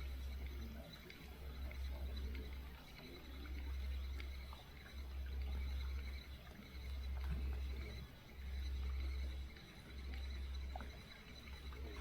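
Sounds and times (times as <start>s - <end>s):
faint small clicks: 0.0s - 12.0s.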